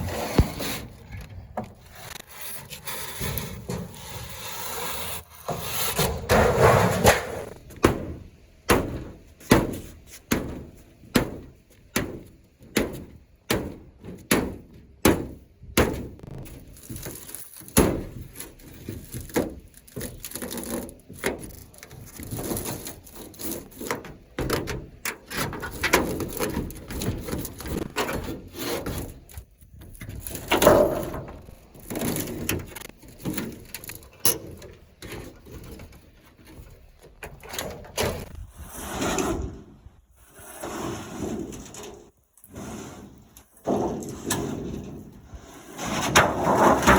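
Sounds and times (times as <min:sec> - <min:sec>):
wood scraping: 0:00.0 - 0:08.2, 0:16.2 - 0:46.9
knocks on wooden timbers: 0:07.7 - 0:16.5.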